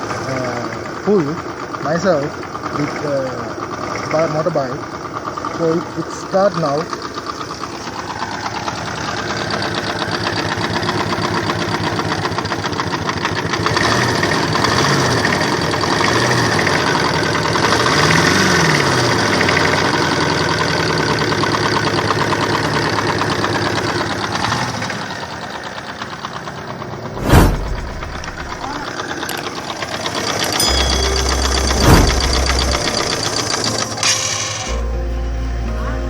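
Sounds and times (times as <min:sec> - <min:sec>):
motorcycle engine idling and revving: 0:00.0 - 0:36.0.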